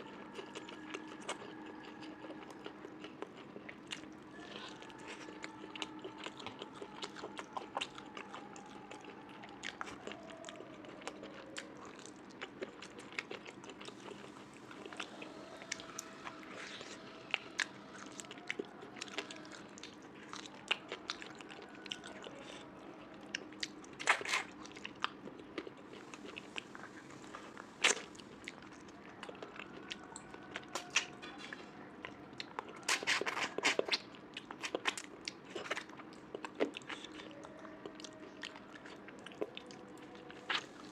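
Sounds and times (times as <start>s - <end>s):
close chewing and biting: 0.0s - 40.9s
crunchy chewing bursts: 0.1s - 40.9s.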